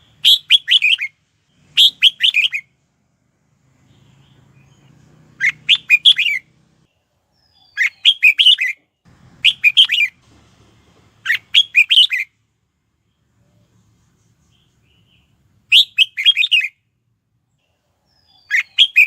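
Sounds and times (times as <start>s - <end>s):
bird singing whistled phrases: 0.1s - 2.7s, 5.4s - 6.4s, 7.4s - 8.8s, 9.4s - 10.2s, 11.3s - 12.3s, 15.0s - 16.8s, 18.1s - 19.0s.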